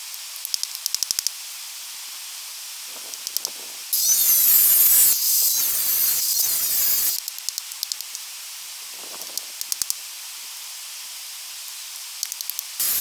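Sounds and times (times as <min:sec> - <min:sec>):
angle grinder grinding stone: 0:04.0 - 0:07.2, 0:12.8 - 0:13.0.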